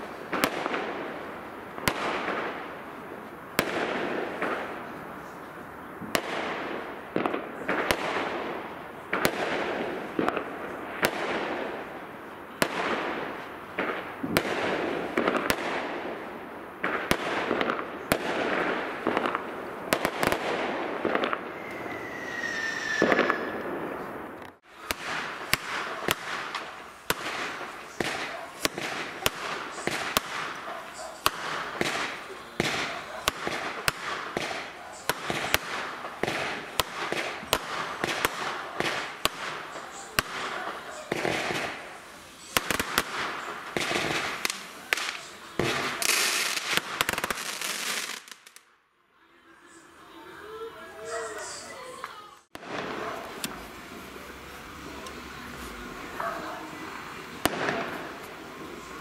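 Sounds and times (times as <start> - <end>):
fireworks bangs: 0.0 - 48.8, 49.6 - 59.0
falling firework whistle: 21.4 - 23.7.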